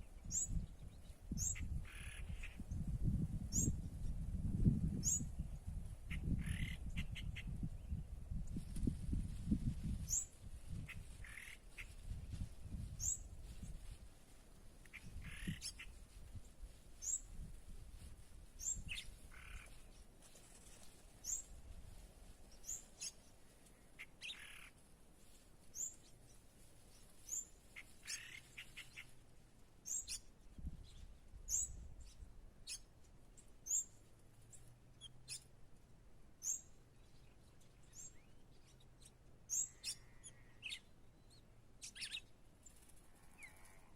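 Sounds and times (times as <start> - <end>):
soft low bird calls: 36.4 - 43.9.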